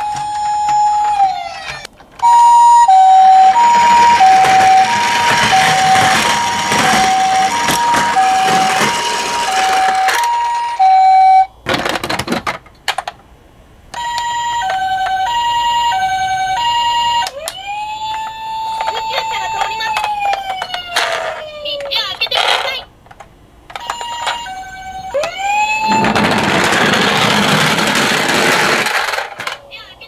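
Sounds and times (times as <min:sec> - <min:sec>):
toy two-tone siren: 0:00.0 - 0:11.6, 0:13.9 - 0:21.9, 0:23.8 - 0:27.6
toy rolling down a ramp: 0:00.0 - 0:13.1, 0:14.0 - 0:22.9, 0:23.7 - 0:29.8.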